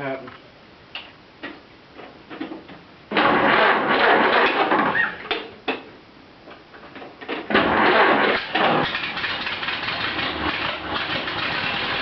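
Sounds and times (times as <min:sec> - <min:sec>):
truck engine cranking and starting: 0:03.1 - 0:05.2, 0:07.5 - 0:12.0.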